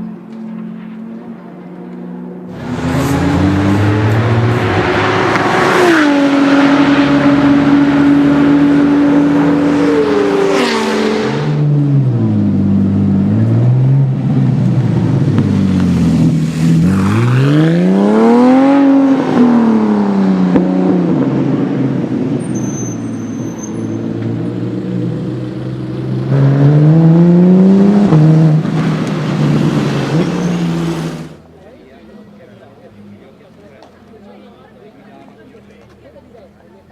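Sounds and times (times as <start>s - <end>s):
car passing by: 2.5s - 11.7s
car engine accelerating hard: 2.5s - 22.6s, 23.8s - 31.4s.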